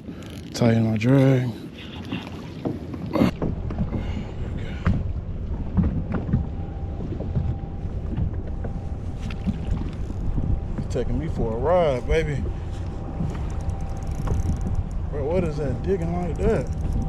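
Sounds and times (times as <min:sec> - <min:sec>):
wind buffeting microphone: 0:00.0 - 0:17.0
water slapping against kayak hull: 0:01.9 - 0:11.4.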